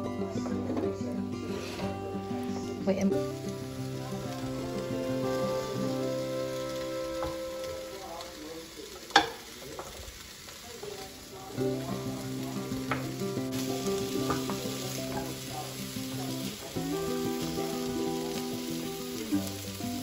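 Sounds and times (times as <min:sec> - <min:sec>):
squash sizzling in a pan: 0:00.6 - 0:20.0
wooden spoon knocking on pan: 0:07.2 - 0:07.4, 0:09.1 - 0:10.0, 0:12.8 - 0:13.2, 0:14.1 - 0:15.4.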